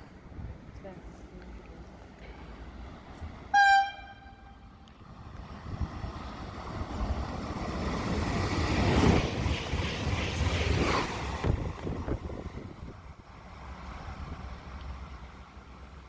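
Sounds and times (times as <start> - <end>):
train passing rumble: 0.0 - 16.0
wind buffeting microphone: 5.0 - 13.4.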